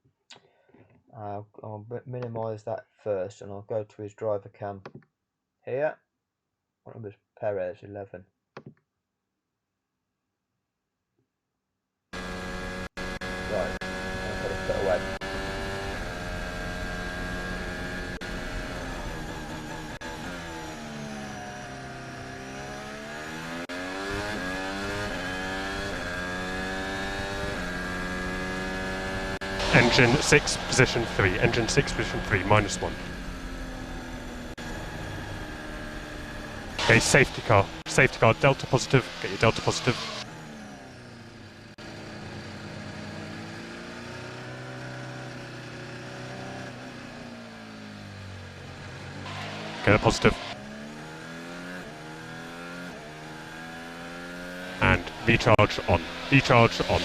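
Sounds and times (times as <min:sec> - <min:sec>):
racing car engine: 0:12.2 - 0:57.0.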